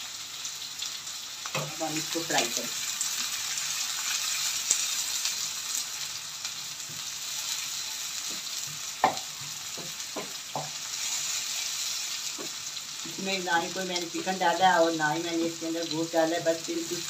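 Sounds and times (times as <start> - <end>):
vegetables sizzling in hot oil: 0.0 - 17.0
spatula knocking against pan: 9.0 - 10.8.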